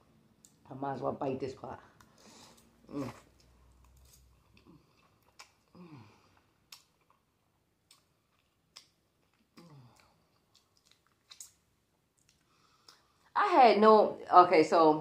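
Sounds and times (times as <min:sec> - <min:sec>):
low hum through closed mouth: 0:01.9 - 0:13.3
wet chewing and lip smacks: 0:03.3 - 0:05.7, 0:06.4 - 0:13.2.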